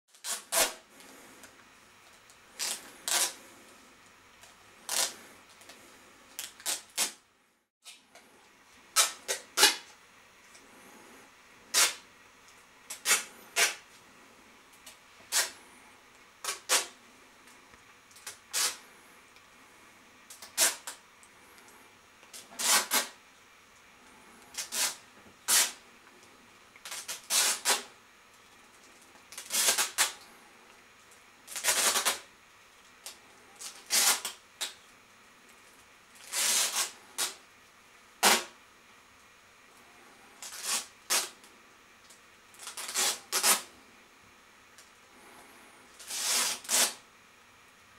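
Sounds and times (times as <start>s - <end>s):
parcel tape ripping off roll: 0.1s - 0.8s, 2.6s - 3.4s, 4.9s - 5.2s, 6.4s - 7.2s, 8.9s - 9.9s, 11.7s - 12.0s, 12.9s - 13.8s, 15.3s - 15.6s, 16.4s - 17.0s, 18.2s - 18.8s, 20.3s - 21.0s, 22.3s - 23.2s, 24.5s - 25.8s, 26.8s - 27.9s, 29.3s - 30.2s, 31.5s - 32.3s, 33.0s - 34.8s, 36.2s - 37.4s, 38.2s - 38.6s, 40.4s - 41.4s, 42.6s - 43.7s, 46.0s - 47.0s.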